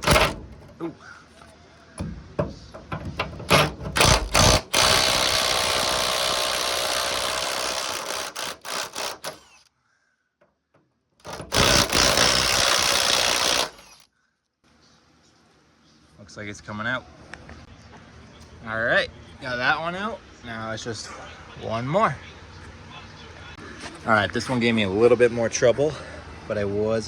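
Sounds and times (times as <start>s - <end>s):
impact wrench hammering: 0.0s - 0.7s, 2.0s - 9.6s, 11.2s - 14.0s
metal clanks: 2.0s - 4.4s.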